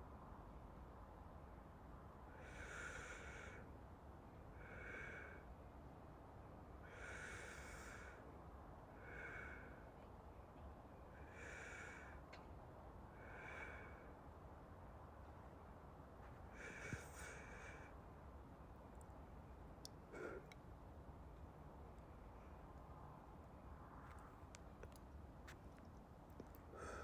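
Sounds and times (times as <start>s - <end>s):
man breathing slowly: 2.3s - 3.7s, 4.5s - 5.6s, 6.8s - 8.3s, 8.9s - 10.1s, 11.1s - 12.5s, 13.1s - 14.4s, 16.4s - 18.1s, 20.0s - 20.6s, 26.7s - 27.0s.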